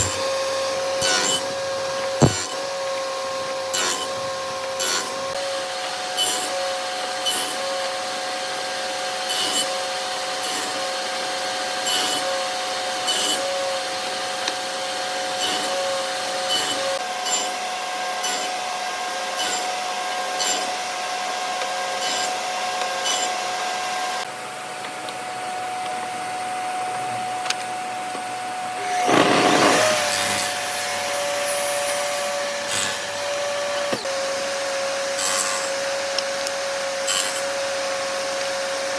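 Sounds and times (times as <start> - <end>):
loud rasping burst: 0.0 - 2.8, 28.8 - 34.0
power tool motor whine: 0.0 - 17.0, 28.7 - 38.9.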